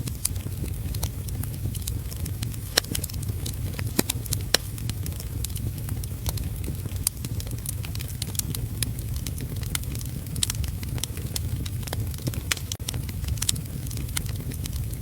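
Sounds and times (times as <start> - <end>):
fire low rumble: 0.0 - 15.0
wood fire crackling: 0.0 - 15.0.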